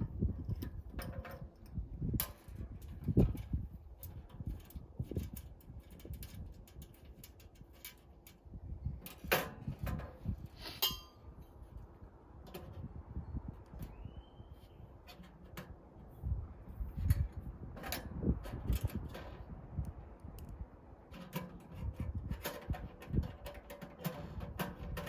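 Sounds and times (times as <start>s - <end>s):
metal clink ringing: 10.8s - 11.2s
metal stove parts knocking: 21.2s - 25.0s.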